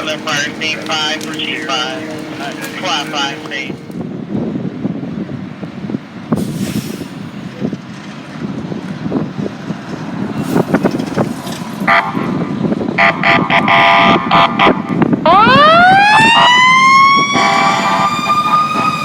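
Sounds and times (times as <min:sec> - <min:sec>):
air horn blasts: 0:00.0 - 0:03.9, 0:11.9 - 0:15.0, 0:17.4 - 0:19.0
fire engine rumbling: 0:00.0 - 0:19.0
air hiss: 0:06.4 - 0:07.2.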